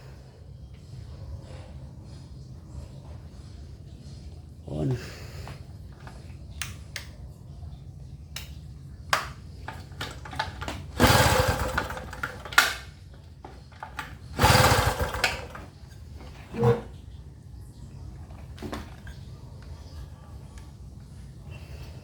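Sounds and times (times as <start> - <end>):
generator engine cranking: 9.7 - 12.9, 13.7 - 15.7
recoil starter pulls: 9.7 - 12.9, 13.7 - 15.7.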